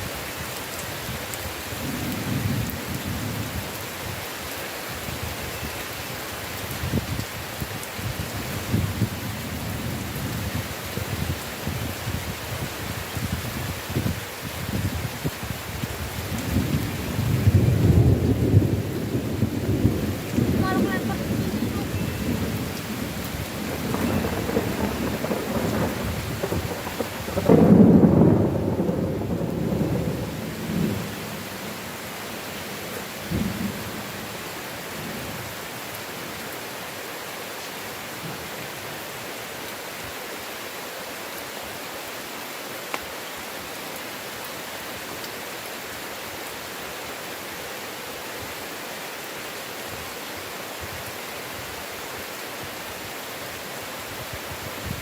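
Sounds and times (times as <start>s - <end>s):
heavy rain: 0.0s - 55.0s
roll of thunder: 16.4s - 31.5s.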